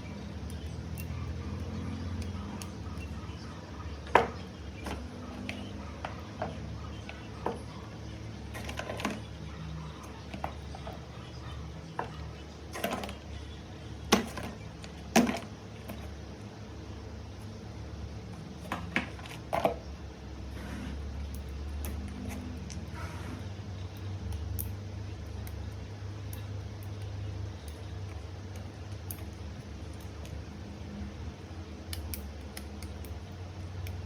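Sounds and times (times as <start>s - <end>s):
small hard objects clicking: 0.0s - 7.5s, 23.8s - 34.0s
steady low hum: 0.0s - 34.0s.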